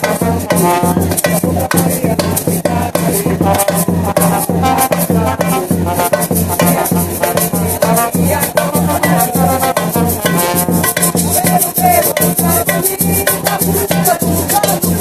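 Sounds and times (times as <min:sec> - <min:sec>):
low drums beating: 0:00.0 - 0:15.0
maracas rattling: 0:00.0 - 0:15.0
people singing: 0:00.0 - 0:15.0.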